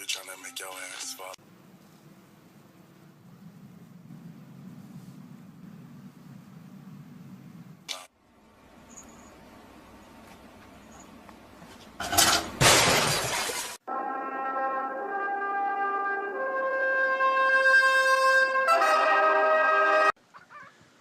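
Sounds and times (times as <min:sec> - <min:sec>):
music with held brass notes: 0:13.9 - 0:20.2.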